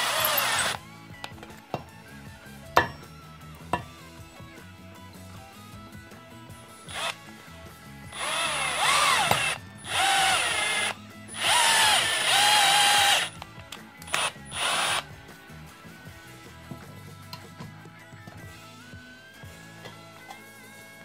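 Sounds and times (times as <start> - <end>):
cordless drill motor whine: 0.0 - 0.8, 6.8 - 7.4, 8.1 - 15.1.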